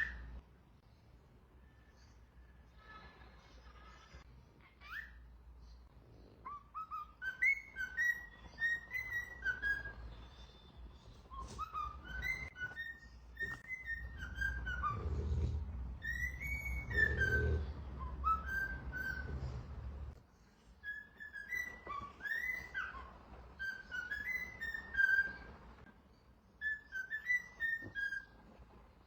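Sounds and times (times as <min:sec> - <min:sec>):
parrot whistling: 0:06.4 - 0:10.2, 0:11.2 - 0:19.7, 0:20.8 - 0:25.6, 0:26.6 - 0:28.4.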